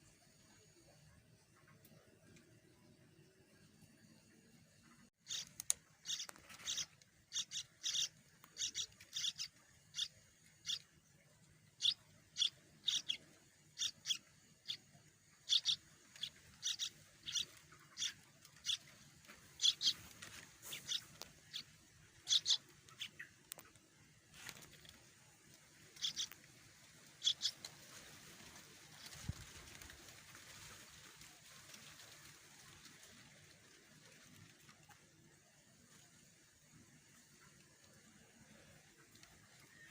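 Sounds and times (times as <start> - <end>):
nestlings peeping: 5.2 - 23.8, 24.4 - 30.0.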